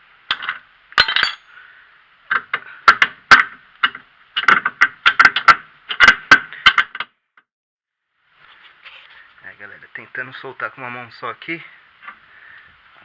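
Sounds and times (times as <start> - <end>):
metal tools clinking on metal: 1.0 - 1.6.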